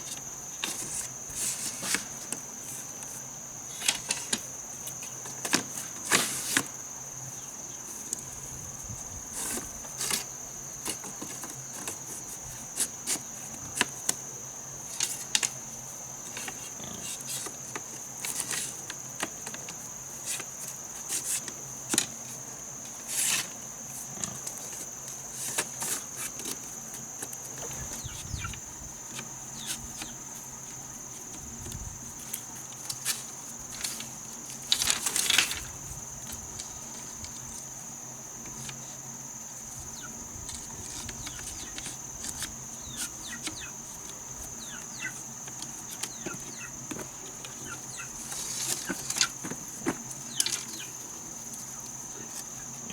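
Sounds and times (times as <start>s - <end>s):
high-pitched insect drone: 27.1s - 31.0s.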